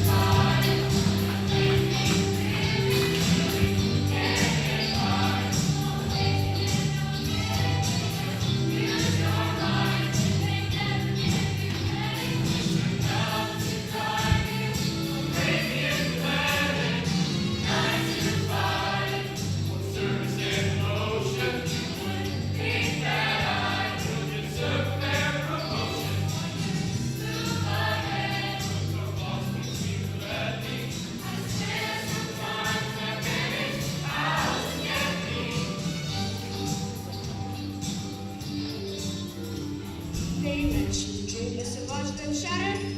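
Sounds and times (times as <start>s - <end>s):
bass line: 0.0s - 32.0s
choir singing: 0.0s - 36.7s
percussion beat: 0.0s - 41.6s.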